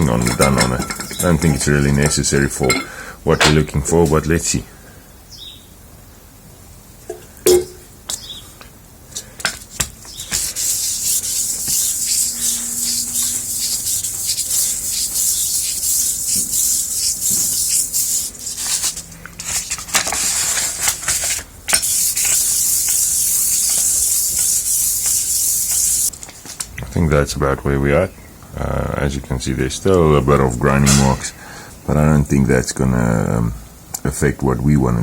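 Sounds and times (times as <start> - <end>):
metal plate rubbing on sandpaper: 10.0 - 26.1.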